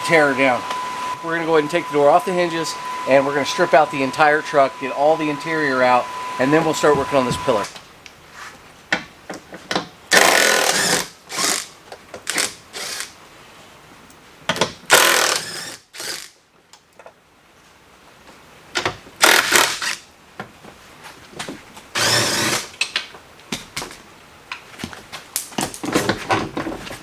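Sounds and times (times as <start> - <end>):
cordless power tool bursts: 0.0 - 7.8, 10.1 - 11.7, 12.3 - 13.1, 14.9 - 16.3, 19.2 - 20.0, 22.0 - 22.7.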